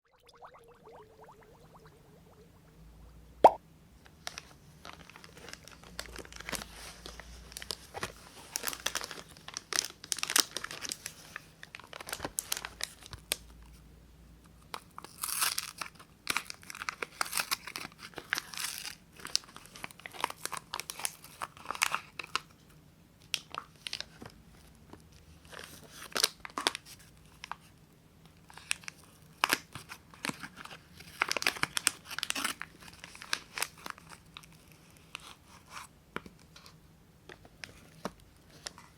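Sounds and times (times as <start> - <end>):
wrapper crinkling and tearing: 4.2 - 13.4, 15.0 - 22.5, 23.3 - 24.3, 25.4 - 27.6, 28.5 - 35.8.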